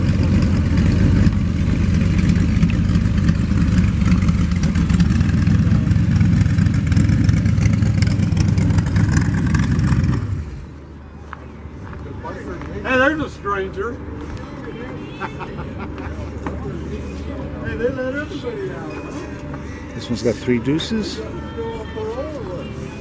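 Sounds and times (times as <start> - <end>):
car engine with deep exhaust: 0.0 - 11.0.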